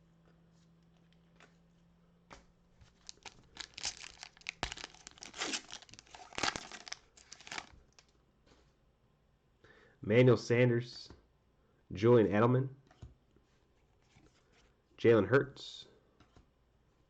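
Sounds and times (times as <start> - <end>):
foil wrapper tearing and crinkling: 3.0 - 8.0.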